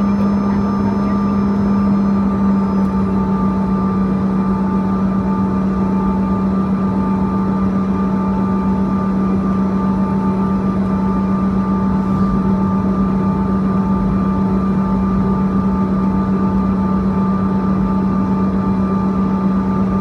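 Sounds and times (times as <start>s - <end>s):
jet engines droning and whining: 0.0s - 20.0s
rushing cabin air noise: 10.4s - 18.2s.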